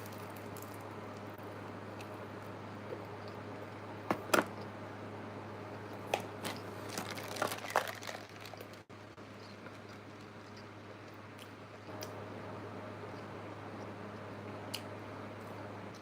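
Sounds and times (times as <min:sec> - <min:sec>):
low steady hum: 0:00.0 - 0:16.0
crunchy food chewing: 0:06.5 - 0:12.1.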